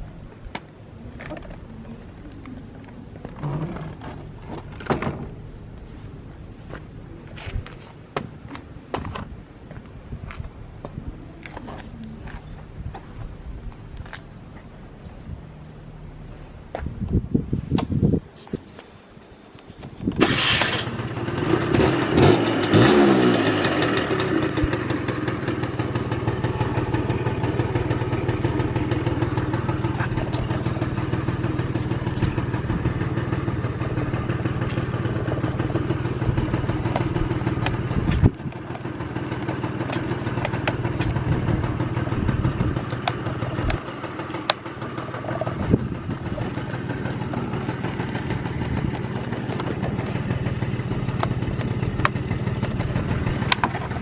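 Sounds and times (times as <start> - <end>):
scooter engine starting and idling: 1.2 - 5.6, 20.0 - 54.0.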